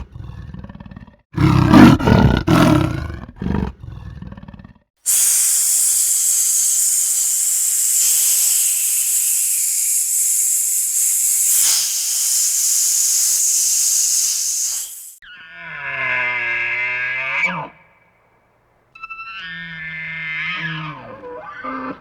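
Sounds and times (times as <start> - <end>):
high-pitched hiss: 5.1 - 15.2.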